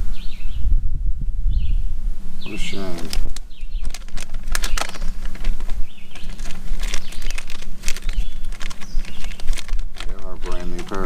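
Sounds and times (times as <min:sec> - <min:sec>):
gear rustling and crinkling: 0:02.6 - 0:11.0.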